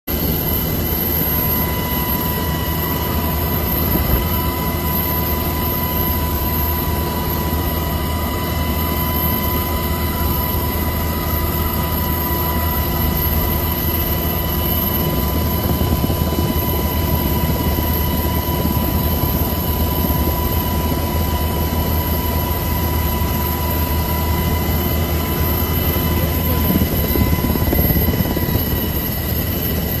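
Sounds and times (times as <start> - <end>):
strong storm wind rushing: 26.6 - 29.0.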